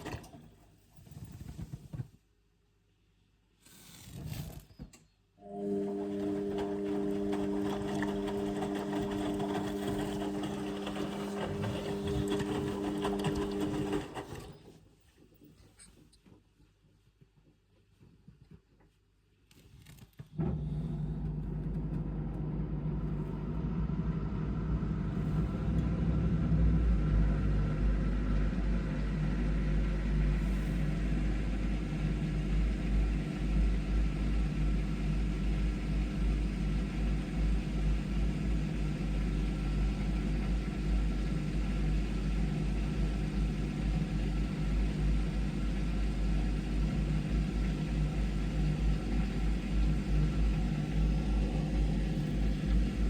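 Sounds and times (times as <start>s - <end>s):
washing machine drain pump humming: 5.4s - 14.8s, 20.6s - 53.0s
water being pumped out: 5.8s - 14.5s.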